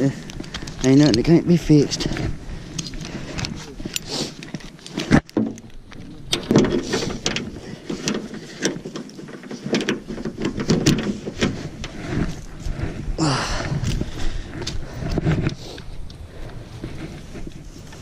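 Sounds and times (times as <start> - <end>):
irregular knocks and clanks: 1.9 - 12.4.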